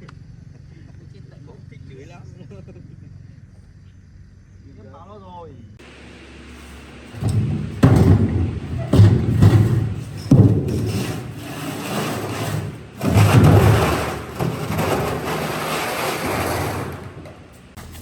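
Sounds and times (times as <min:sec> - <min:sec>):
rumbling scraping noise: 0:06.4 - 0:17.8
heavy thuds: 0:06.9 - 0:17.8.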